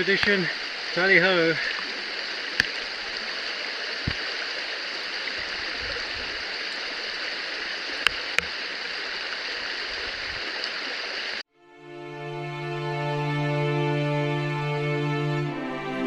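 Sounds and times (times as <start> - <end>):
river water rushing: 0.0 - 11.4.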